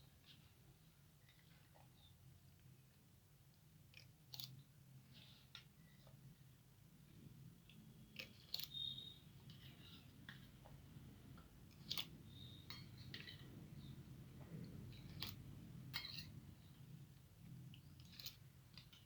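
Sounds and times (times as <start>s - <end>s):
steady low hum: 6.2s - 19.0s.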